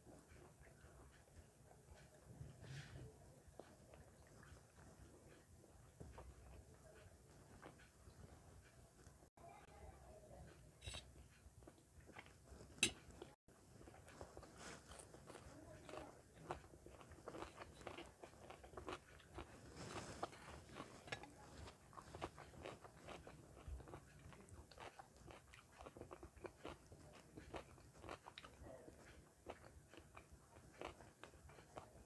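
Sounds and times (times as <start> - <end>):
chewing food crunches: 11.6 - 32.0.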